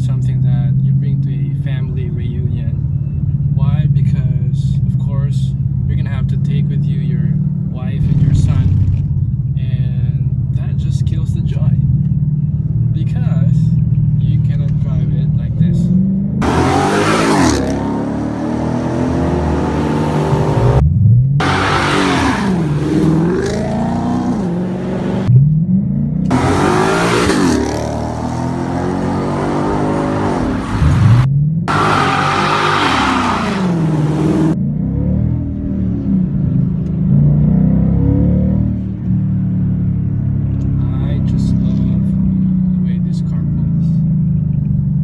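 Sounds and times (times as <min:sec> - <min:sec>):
car engine revving: 0:11.7 - 0:44.6.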